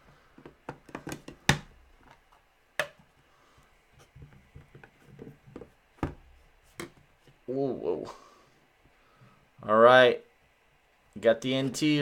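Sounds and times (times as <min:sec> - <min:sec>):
card packaging clicks and taps: 0:00.4 - 0:02.2.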